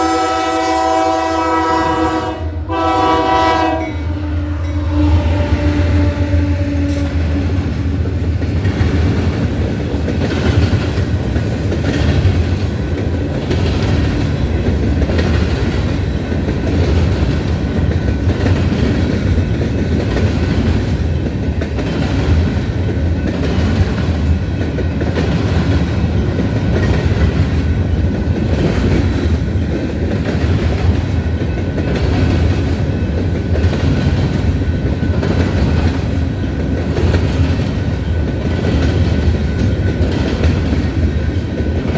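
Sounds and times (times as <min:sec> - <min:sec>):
freight train wheels rumbling on rail: 0:00.0 - 0:41.9
rhythmic clickety-clack: 0:06.9 - 0:41.9.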